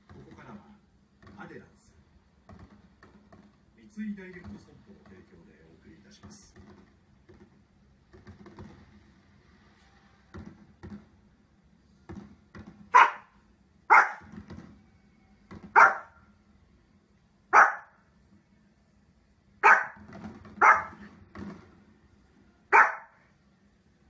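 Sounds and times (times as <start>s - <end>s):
dog barking: 12.9s - 14.3s, 15.7s - 16.2s, 17.5s - 18.0s, 19.6s - 20.0s, 20.6s - 21.0s, 22.7s - 23.2s.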